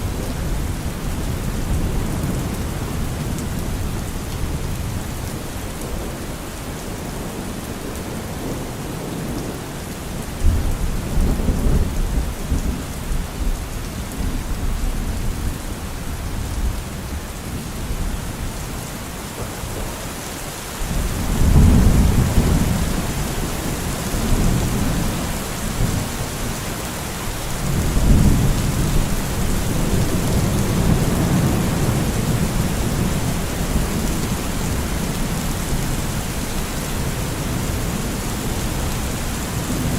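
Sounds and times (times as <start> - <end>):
steady rain falling: 0.0 - 39.9
thunder rumbling: 20.8 - 26.5.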